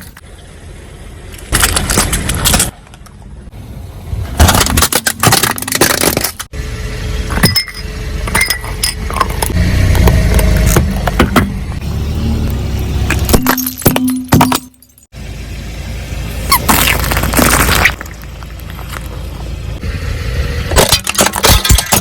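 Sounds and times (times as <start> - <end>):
car rumble: 0.0 - 22.0
tyre crushing brittle objects: 1.4 - 2.8, 4.4 - 6.5, 16.5 - 19.2, 20.7 - 22.0.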